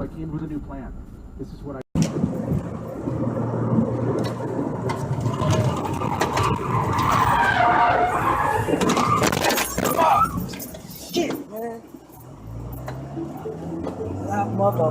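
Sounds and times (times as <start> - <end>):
car tyres skidding: 3.1 - 11.2.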